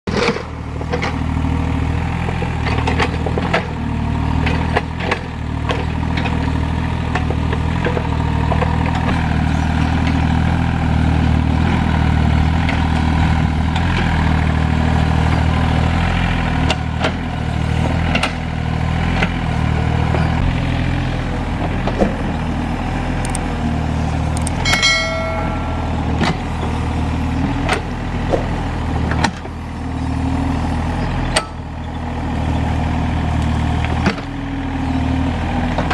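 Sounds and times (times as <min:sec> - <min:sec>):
excavator diesel engine: 0:00.1 - 0:35.9
brief high pitched tone: 0:24.6 - 0:27.0.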